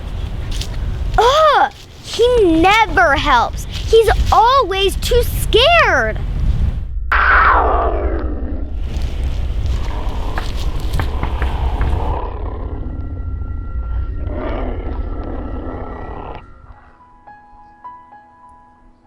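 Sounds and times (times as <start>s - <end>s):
deep rumbling roar effect: 6.2s - 16.9s.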